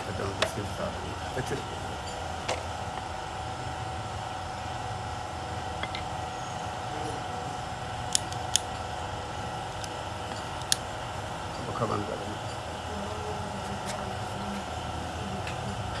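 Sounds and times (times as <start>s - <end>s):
car engine idling: 9.3s - 16.0s
sharp metallic clicks: 9.8s - 10.9s.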